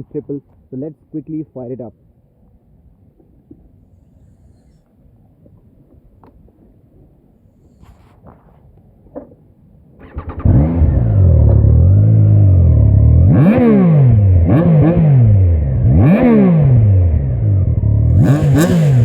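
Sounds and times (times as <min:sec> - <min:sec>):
engine starter cranking: 0:10.0 - 0:10.8
motorcycle engine revving: 0:10.0 - 0:19.0
motorcycle engine idling: 0:17.2 - 0:19.0.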